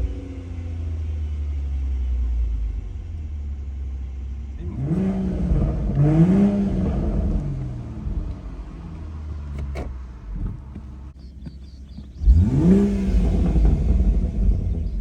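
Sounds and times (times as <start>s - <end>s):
car exhaust idling and revving: 0.0s - 15.0s.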